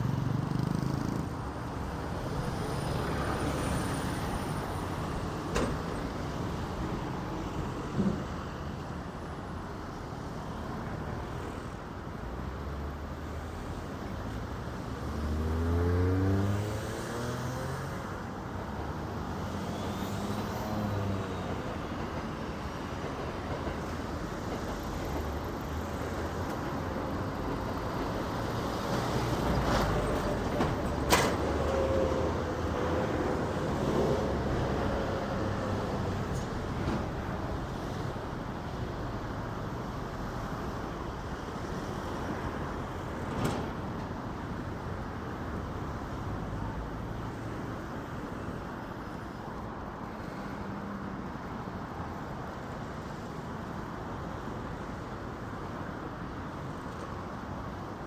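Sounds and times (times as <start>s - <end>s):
train rumbling past: 18.6s - 44.3s.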